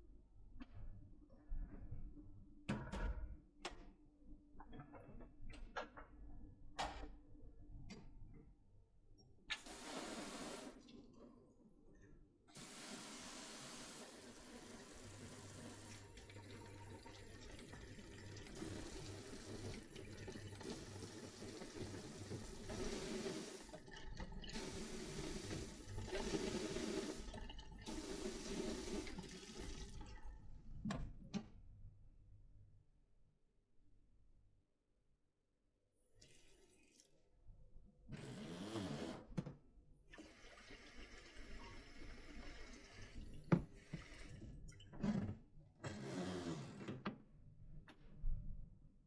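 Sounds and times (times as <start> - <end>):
tap water running into sink: 9.5 - 10.8, 12.5 - 30.2.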